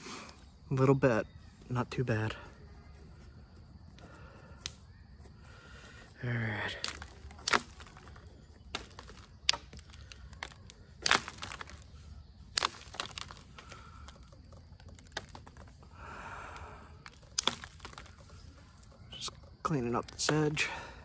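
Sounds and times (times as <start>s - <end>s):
stone knapping clicks: 4.5s - 4.9s, 6.6s - 16.0s, 17.0s - 20.6s.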